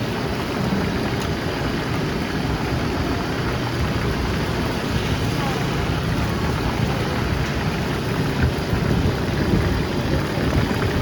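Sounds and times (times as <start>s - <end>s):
busy food stall din: 0.0s - 11.0s.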